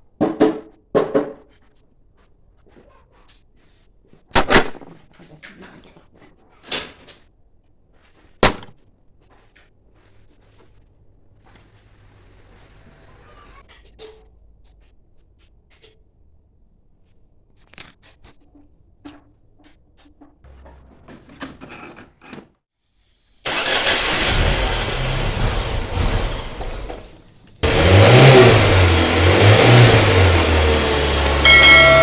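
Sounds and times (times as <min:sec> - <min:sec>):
petrol engine running and revving: 0:23.5 - 0:32.0.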